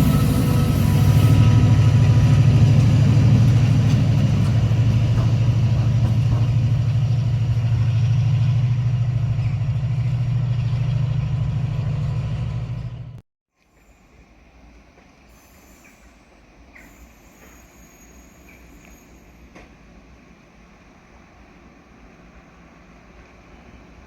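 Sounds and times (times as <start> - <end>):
train engine throbbing: 0.0 - 13.2.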